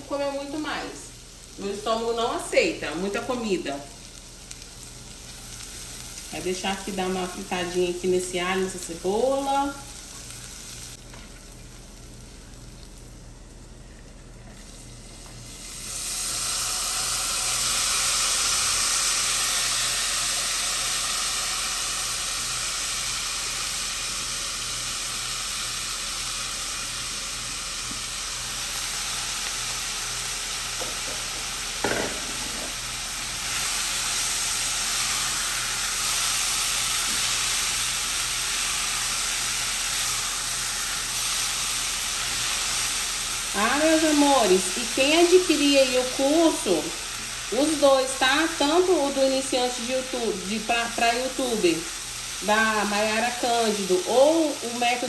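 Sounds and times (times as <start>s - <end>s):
garlic and onion sizzling: 0.0s - 55.0s
short knock: 31.8s - 32.6s.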